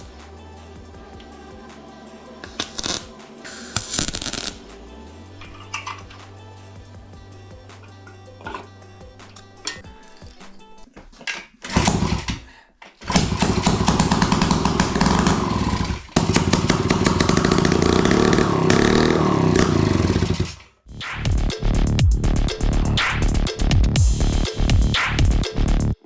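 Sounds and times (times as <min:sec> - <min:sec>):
background music: 0:00.0 - 0:10.9, 0:20.9 - 0:26.0
two-stroke motorcycle engine: 0:13.1 - 0:20.6.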